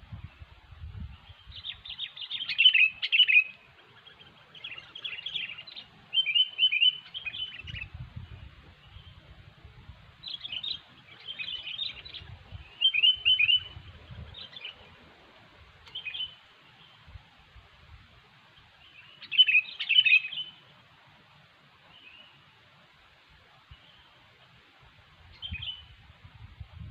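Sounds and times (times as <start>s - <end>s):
birds chattering and chirping: 1.2s - 9.4s, 10.1s - 17.3s, 18.4s - 20.7s.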